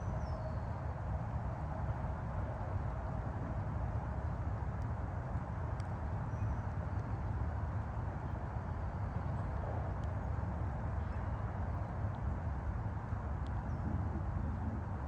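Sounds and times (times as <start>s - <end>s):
distant highway traffic rumble: 0.0s - 15.0s
faint high ticks: 5.7s - 6.0s.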